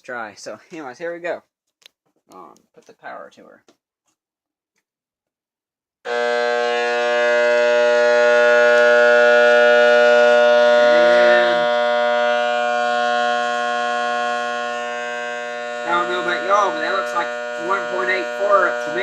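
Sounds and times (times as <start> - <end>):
transformer humming loudly: 6.1 - 19.0.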